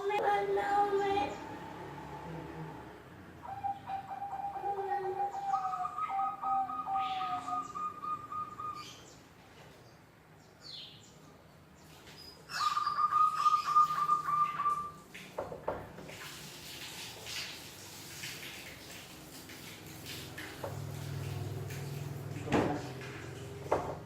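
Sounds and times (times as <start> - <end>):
doves rolling trilled call: 3.4 - 9.0, 12.5 - 15.0.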